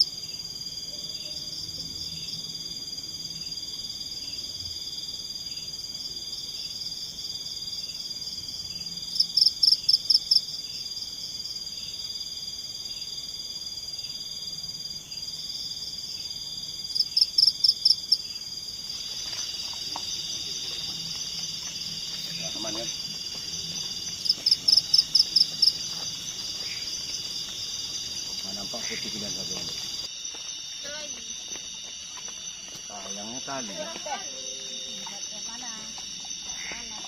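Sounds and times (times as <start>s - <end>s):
rapid insect chirps: 0.0s - 37.0s
shrill insect buzzing: 16.9s - 30.1s.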